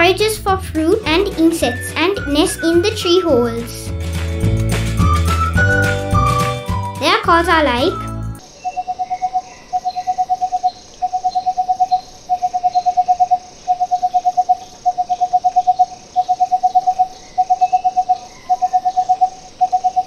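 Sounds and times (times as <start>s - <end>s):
barbet calling: 7.0s - 20.0s.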